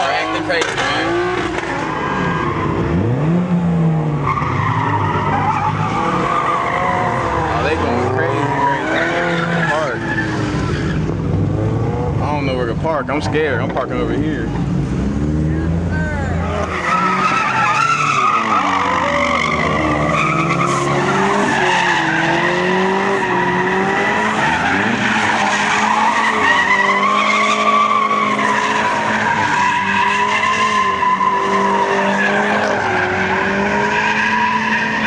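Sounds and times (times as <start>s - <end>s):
car engines revving: 0.0s - 35.0s
tyres squealing: 4.2s - 11.1s, 16.4s - 35.0s.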